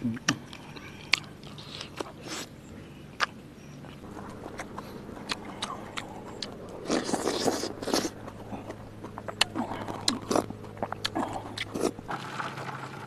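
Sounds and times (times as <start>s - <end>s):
man chewing and lip smacking: 0.1s - 12.1s
rough noisy burst: 4.0s - 13.0s.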